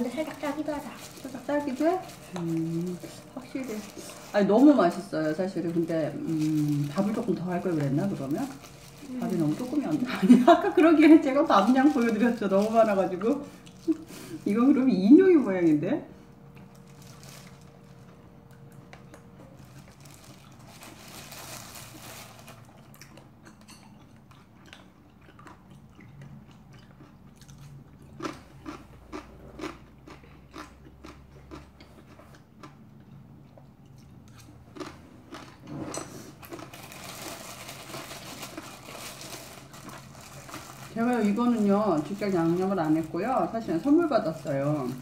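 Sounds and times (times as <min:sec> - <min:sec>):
sharp crunches of chewing: 0:18.4 - 0:35.7
person chewing: 0:21.8 - 0:40.8.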